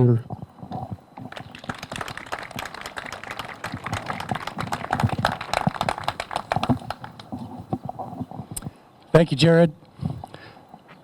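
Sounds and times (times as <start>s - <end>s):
small crowd applauding: 1.2s - 7.8s.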